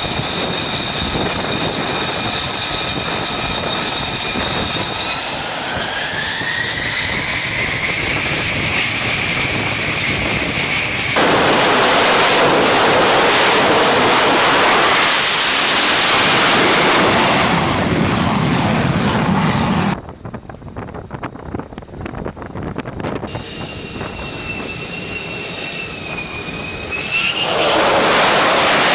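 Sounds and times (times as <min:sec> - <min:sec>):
jet engine whine and roar: 0:00.0 - 0:28.9.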